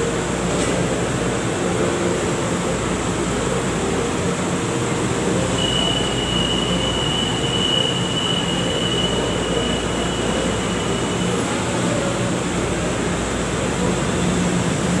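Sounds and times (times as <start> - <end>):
light rail train rumble and hiss: 0.0 - 15.0
high steady squeal: 5.4 - 12.9.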